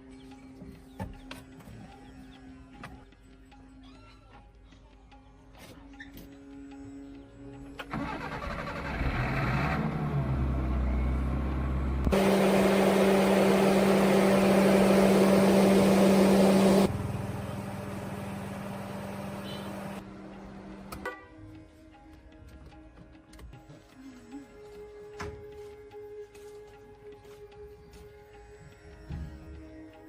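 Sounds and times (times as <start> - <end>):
tractor engine running: 7.8 - 20.4.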